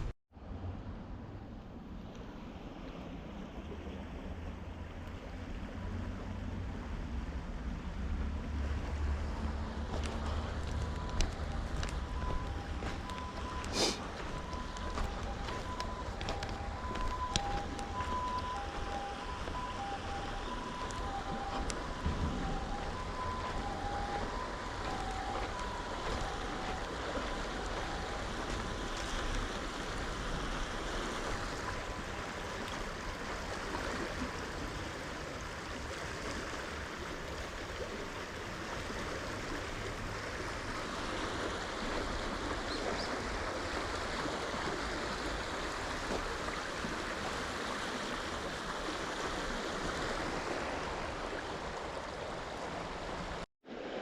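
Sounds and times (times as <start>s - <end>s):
river water flowing: 0.0s - 54.0s.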